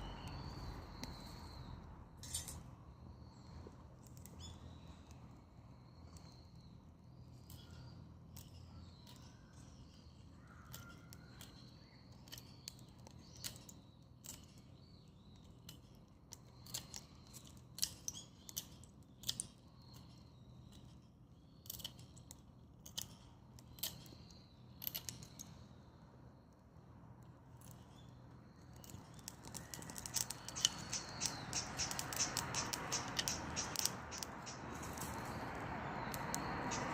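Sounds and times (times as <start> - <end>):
branches burning with crackles and pops: 3.4 - 20.2, 27.8 - 36.9.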